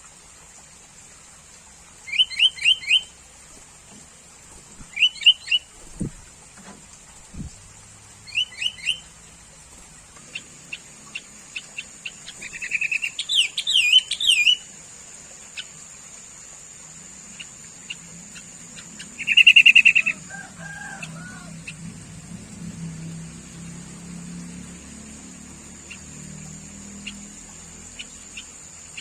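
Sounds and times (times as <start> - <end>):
buzzy bird trill: 2.1 - 3.1, 4.8 - 6.2, 8.2 - 9.1, 10.3 - 14.7, 17.0 - 23.4, 24.2 - 29.0
bulbul chirping and chattering: 8.2 - 9.1, 10.3 - 14.7, 17.0 - 22.0, 25.6 - 29.0.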